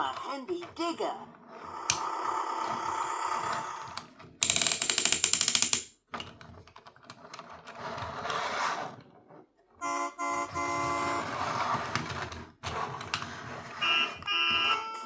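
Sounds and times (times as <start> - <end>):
rapid mechanical clicking: 4.4 - 5.9.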